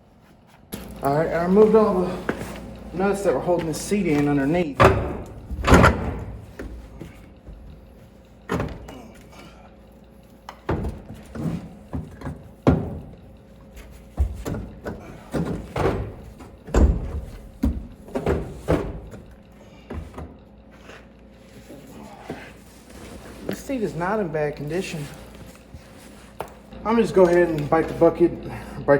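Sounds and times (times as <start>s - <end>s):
clunks and thumps in steel cab: 4.8s - 7.8s.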